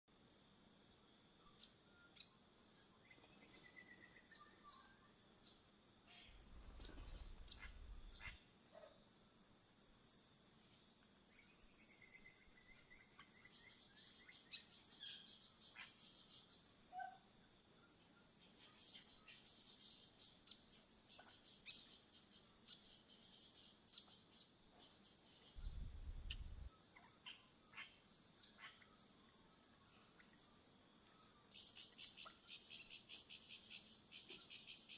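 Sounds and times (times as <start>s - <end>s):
birds chirping: 6.2s - 9.0s, 19.1s - 30.6s
low rumbles: 25.6s - 26.7s
high insect-like trill: 25.6s - 26.8s.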